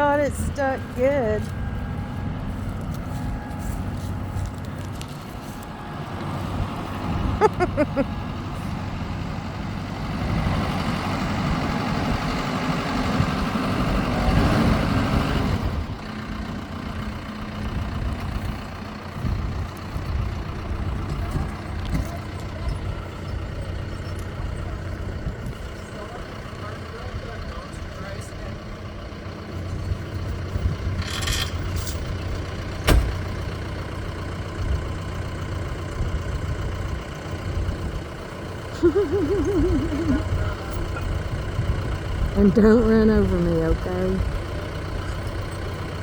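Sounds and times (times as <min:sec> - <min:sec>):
heavy vehicle engine running: 0:00.0 - 0:46.0.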